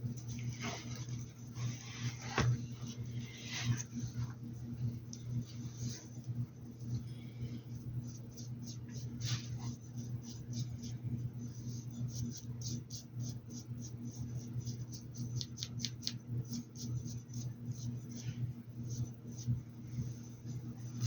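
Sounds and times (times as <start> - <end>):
steady low hum: 0.0 - 21.0
paintbrush scratching on fabric: 0.1 - 4.4, 8.0 - 15.5.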